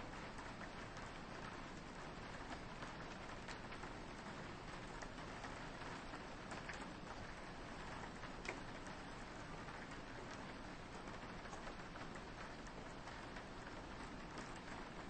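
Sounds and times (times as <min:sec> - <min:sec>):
rain pattering on a window: 0:00.0 - 0:15.0
raindrop taps: 0:05.0 - 0:10.5, 0:11.4 - 0:15.0.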